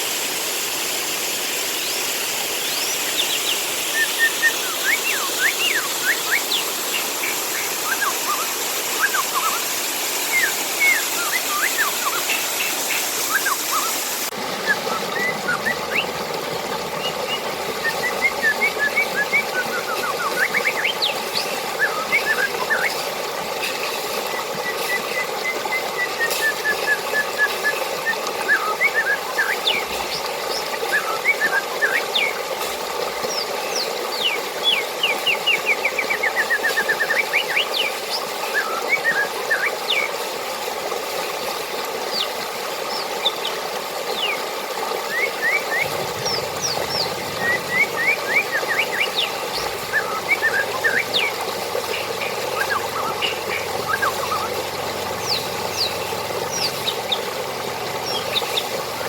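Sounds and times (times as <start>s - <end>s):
water flowing: 0.0s - 59.0s
small birds chirping: 1.8s - 14.0s, 45.2s - 59.0s.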